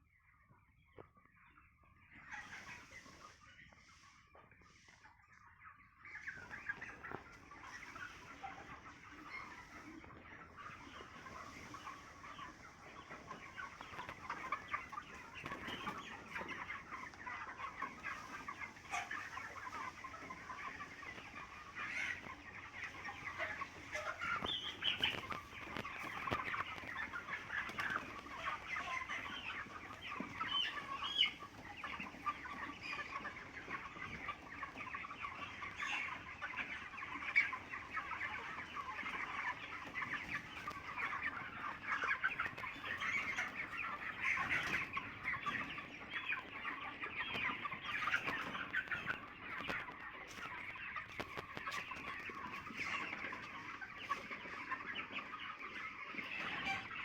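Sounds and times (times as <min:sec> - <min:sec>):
chickens cheeping and clucking: 0:00.0 - 0:57.0.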